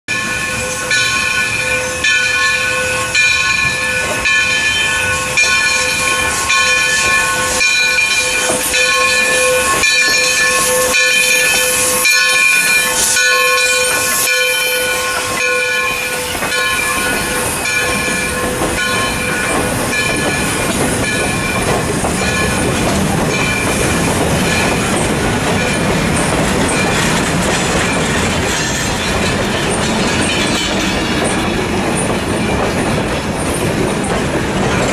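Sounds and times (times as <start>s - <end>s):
locomotive bell ringing: 0.1s - 34.9s
wheels clicking over rail joints: 15.0s - 34.9s.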